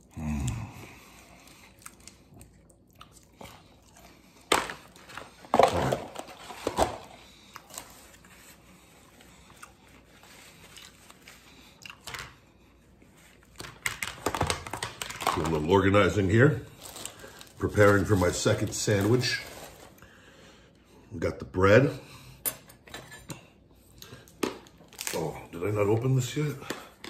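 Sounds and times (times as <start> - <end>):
man biting and chewing: 0.0 - 5.4, 9.1 - 12.4
food handling clicks and knocks: 4.5 - 7.9, 13.5 - 15.5.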